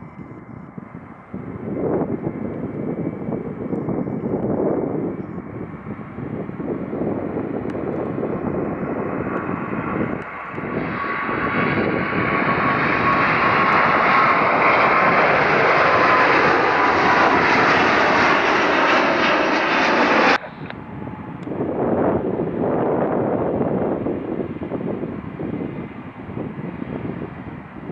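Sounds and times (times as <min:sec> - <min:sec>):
jet airliner taking off: 0:00.0 - 0:27.9.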